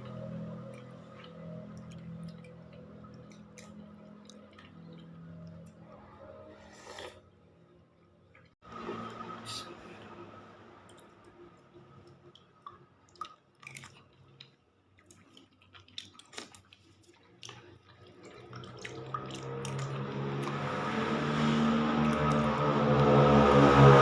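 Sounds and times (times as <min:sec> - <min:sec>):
vehicle engine approaching: 0:18.9 - 0:24.0.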